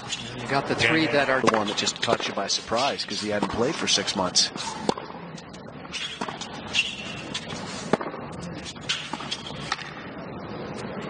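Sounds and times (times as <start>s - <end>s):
stadium ambience hum: 0.0s - 11.0s
racket hitting tennis ball: 1.4s - 3.6s, 5.8s - 10.0s.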